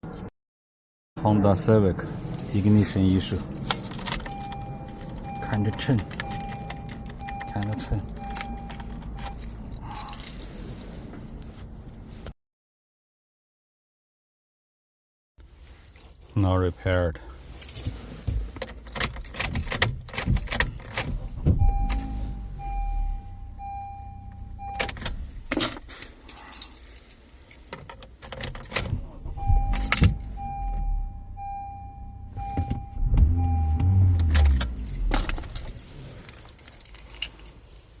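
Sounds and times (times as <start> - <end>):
car keys jangling in ignition: 2.3 - 12.1, 15.5 - 16.6, 17.4 - 38.0
car chime beeping: 3.8 - 10.0, 21.6 - 25.5, 29.0 - 36.1.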